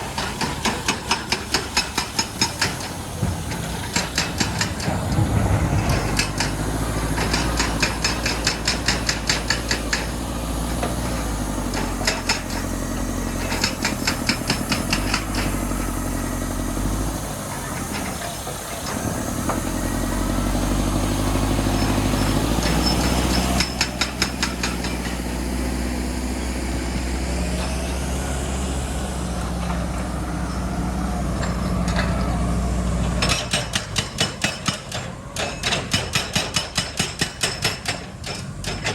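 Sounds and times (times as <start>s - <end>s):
rapid hammering blows: 0.0s - 11.0s, 11.6s - 15.8s, 33.2s - 38.9s
diesel engine running: 0.0s - 36.3s.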